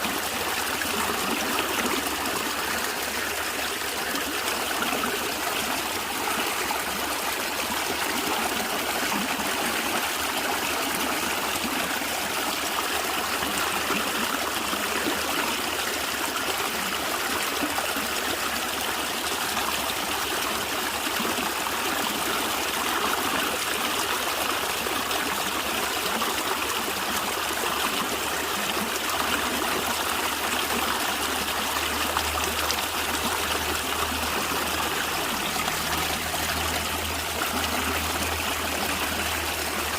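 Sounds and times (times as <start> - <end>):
stream gurgling and trickling: 0.0 - 39.9.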